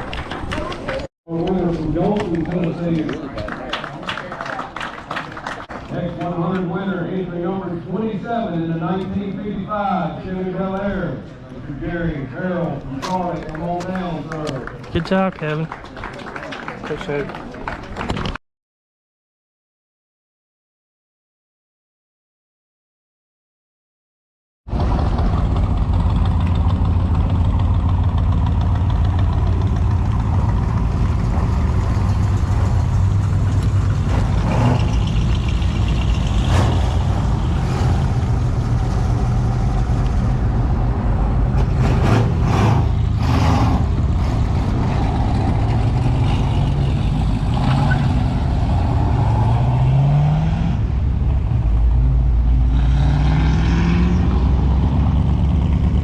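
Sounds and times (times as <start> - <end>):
car engines running: 0.0 - 16.0, 24.7 - 56.0
engine revving: 24.7 - 56.0.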